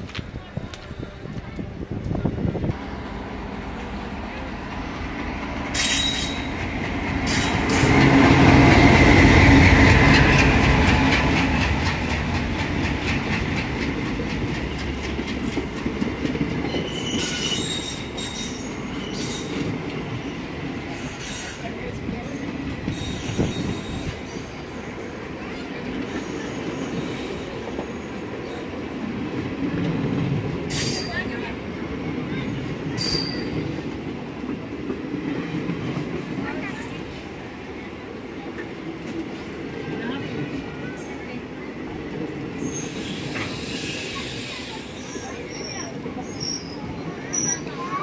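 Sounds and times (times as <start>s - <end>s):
diesel locomotive engine rumble: 0.0s - 48.0s
brief wheel squeals: 5.8s - 6.6s, 16.7s - 19.6s, 33.0s - 33.6s, 42.6s - 47.8s.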